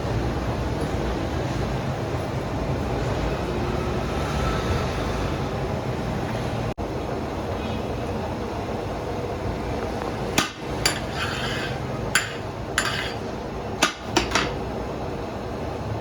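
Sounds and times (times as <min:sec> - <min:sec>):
sharp metallic clanks: 0:10.3 - 0:14.6.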